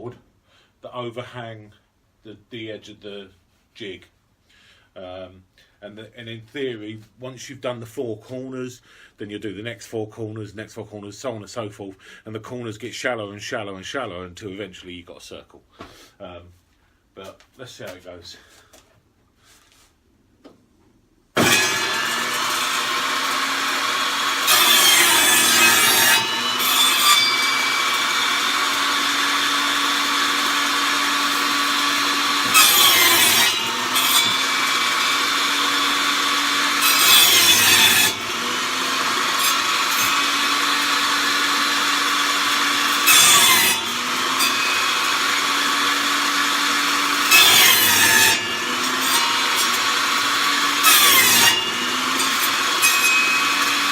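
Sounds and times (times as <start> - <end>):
saw blade cutting wood: 21.4 - 53.9
table saw running: 21.4 - 53.9.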